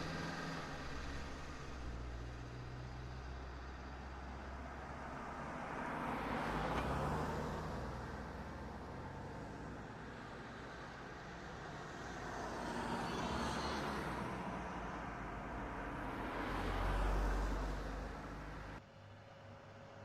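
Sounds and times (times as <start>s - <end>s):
car driving past: 11.8s - 18.8s.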